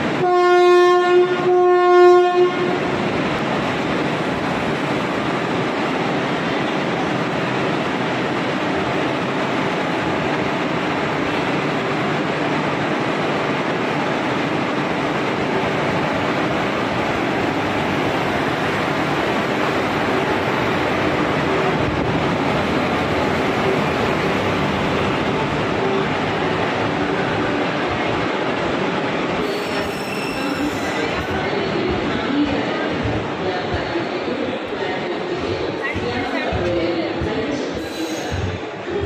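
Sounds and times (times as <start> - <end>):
train clickety-clack passing: 0.0 - 39.0
train horn blasts: 0.2 - 2.9.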